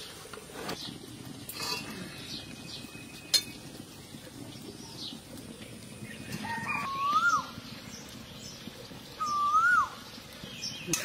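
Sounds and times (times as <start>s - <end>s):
metal pan clanking: 3.3s - 3.6s
bird calling: 6.1s - 11.0s.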